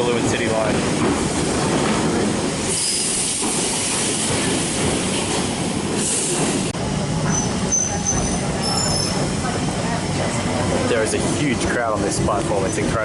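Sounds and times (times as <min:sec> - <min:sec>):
train rail and wheel noise: 0:00.0 - 0:13.0
wheel squeal hiss: 0:02.7 - 0:03.4.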